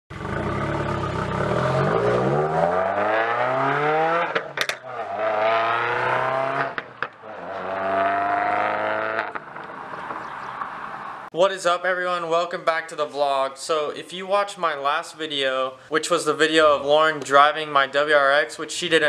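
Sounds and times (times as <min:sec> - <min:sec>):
car accelerating through gears: 0:00.2 - 0:09.4.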